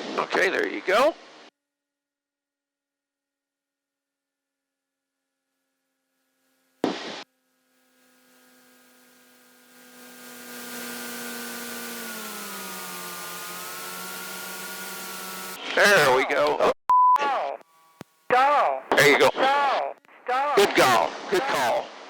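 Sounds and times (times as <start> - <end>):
aircraft engine drone: 6.1 - 15.7.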